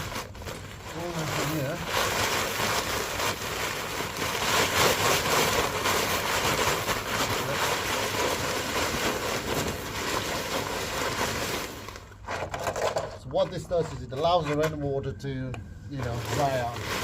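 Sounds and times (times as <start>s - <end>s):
gravel pouring out of bag: 0.0s - 12.2s, 16.0s - 17.0s.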